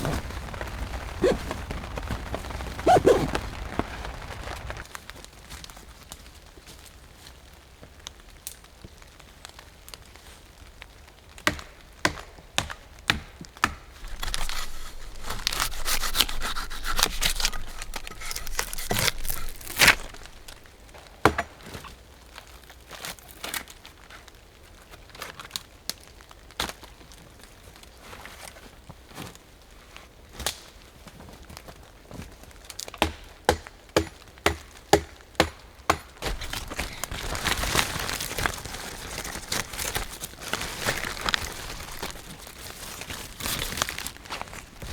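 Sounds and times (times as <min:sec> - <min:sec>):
crinkling and rustling: 0:00.0 - 0:04.9, 0:14.0 - 0:21.0, 0:36.2 - 0:44.9.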